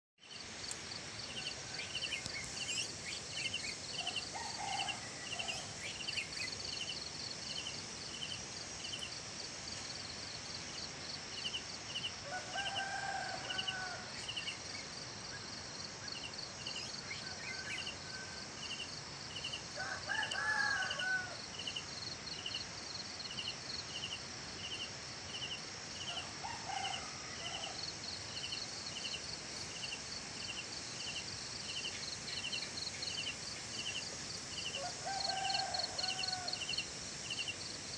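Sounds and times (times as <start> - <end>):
insect chirping: 0.2 - 37.9
roosters crowing: 4.0 - 5.8, 12.2 - 14.2, 19.8 - 21.4, 26.1 - 27.9, 34.8 - 36.8.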